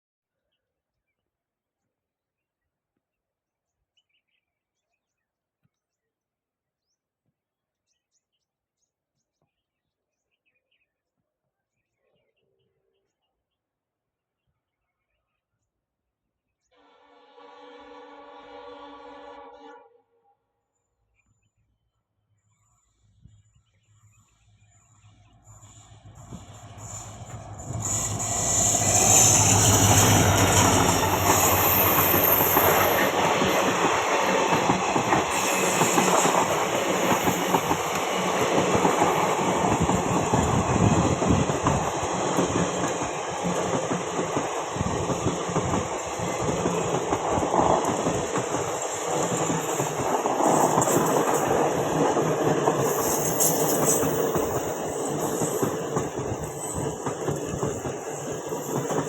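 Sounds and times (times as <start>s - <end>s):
diesel locomotive engine hum: 24.4s - 59.0s
train wheels clattering on rails: 25.5s - 59.0s.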